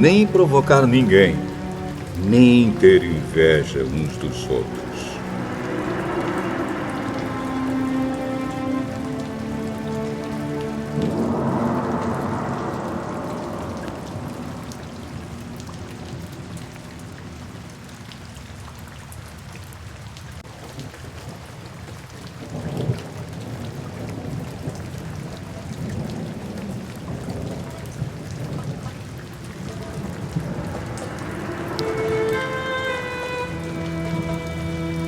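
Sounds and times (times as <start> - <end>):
steady rain falling: 0.0 - 35.0
low rolling thunder: 11.0 - 16.4, 22.5 - 32.4.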